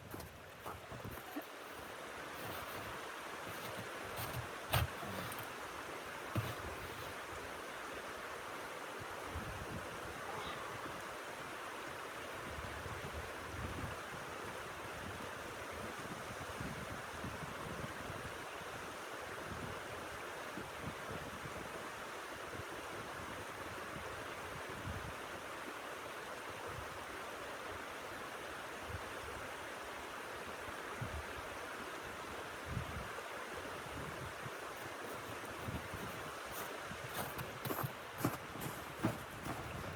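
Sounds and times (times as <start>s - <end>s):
gusts buffeting microphone: 34.0s - 39.9s.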